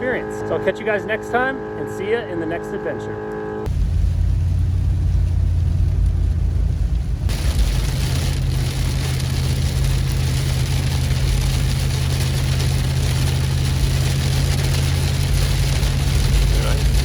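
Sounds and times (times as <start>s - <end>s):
vehicle engine humming: 0.0s - 17.0s
heavy rain hiss: 3.7s - 17.0s.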